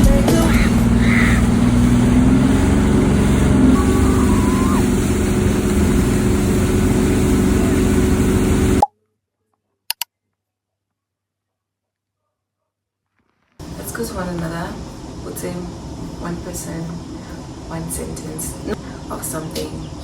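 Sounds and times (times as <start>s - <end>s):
vehicle engine running: 0.0s - 8.8s.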